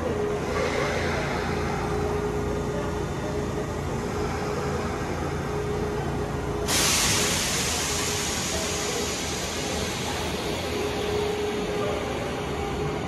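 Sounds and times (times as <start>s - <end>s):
electric train humming: 0.0s - 13.0s
thin steady whine: 0.0s - 13.0s
air brakes hissing: 0.4s - 2.3s, 6.5s - 12.7s.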